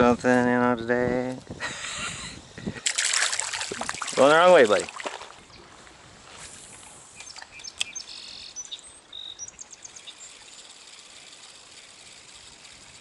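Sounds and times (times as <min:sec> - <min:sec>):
faint stream rushing: 0:02.8 - 0:13.0
songbird chirping and trilling: 0:07.2 - 0:10.8.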